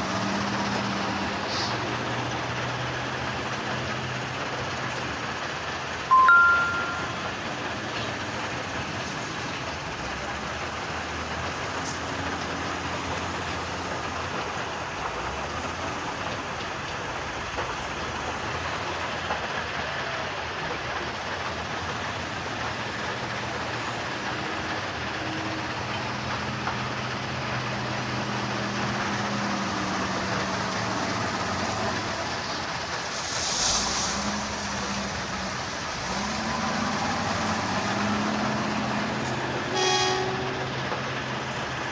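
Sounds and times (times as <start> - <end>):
heavy diesel machinery running: 0.0 - 41.9
short hiss: 32.5 - 35.9.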